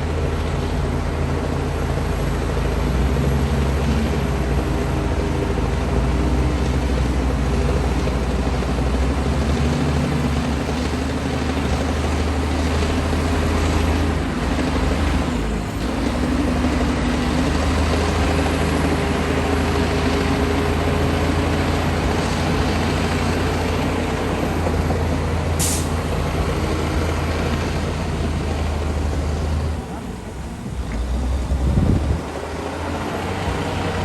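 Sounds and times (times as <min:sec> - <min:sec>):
bulldozer diesel engine running: 0:00.0 - 0:34.0
short hiss: 0:25.6 - 0:26.0.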